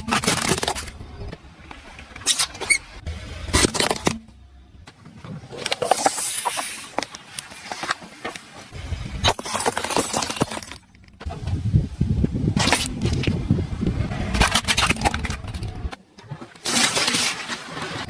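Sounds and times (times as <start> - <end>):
car crushing objects: 0.0 - 6.6, 9.0 - 11.4, 14.1 - 18.0.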